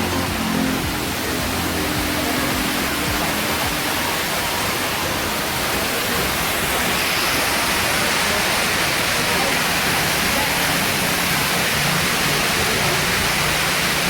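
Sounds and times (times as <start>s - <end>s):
rushing hiss: 0.0s - 14.0s.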